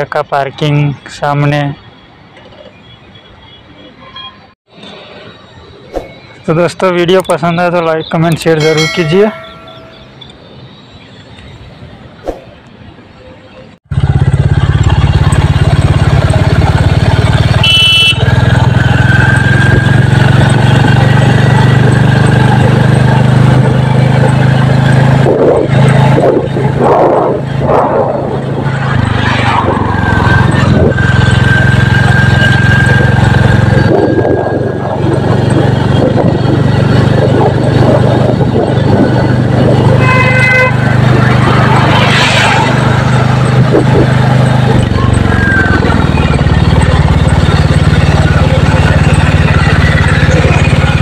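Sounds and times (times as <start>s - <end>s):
high beep: 5.8s - 10.6s
motorcycle engine running: 13.9s - 28.7s, 43.2s - 51.0s.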